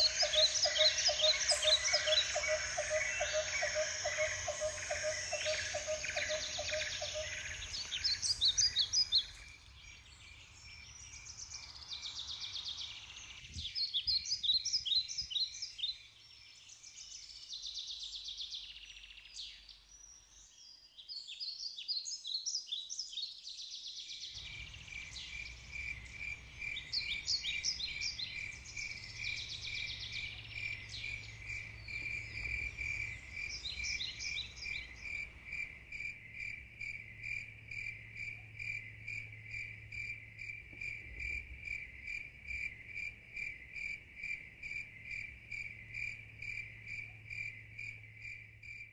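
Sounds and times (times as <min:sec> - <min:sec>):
insect pulsing trill: 0:00.0 - 0:09.4
songbirds chirping and trilling: 0:00.0 - 0:48.9.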